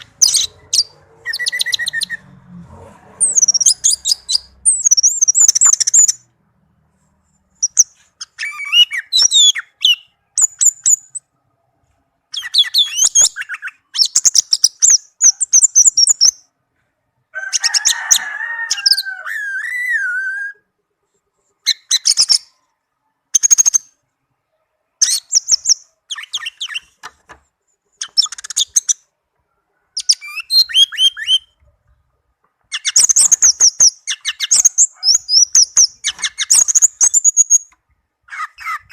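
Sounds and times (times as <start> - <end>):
bird singing: 0.0 - 2.4, 3.2 - 6.3, 7.5 - 16.5, 21.6 - 27.0, 27.9 - 29.2, 29.8 - 31.6, 32.6 - 38.9.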